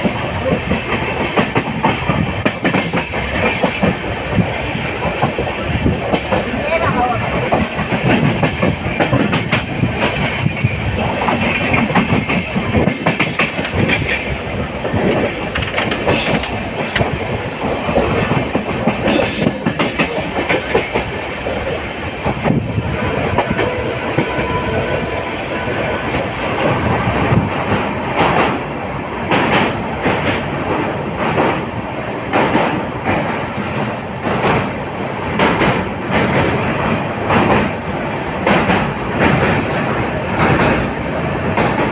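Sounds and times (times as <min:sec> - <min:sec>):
wheels clattering over rail joints: 0:00.0 - 0:28.6
train rumbling on track: 0:00.0 - 0:41.9.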